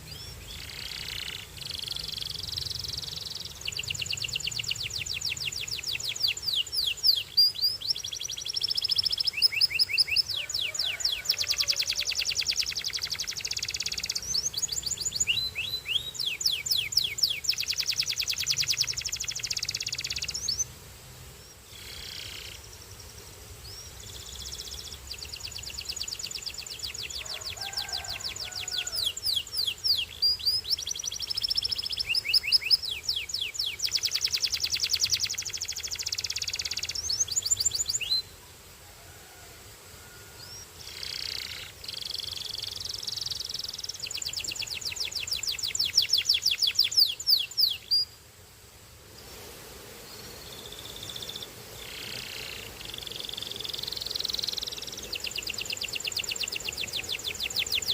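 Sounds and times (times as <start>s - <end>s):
canary trilling: 8.8s - 20.5s.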